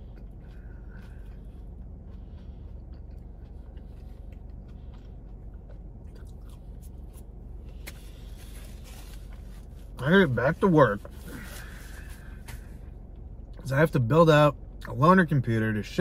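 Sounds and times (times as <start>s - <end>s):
person chewing food: 0.0s - 10.0s
low hum: 0.0s - 16.0s.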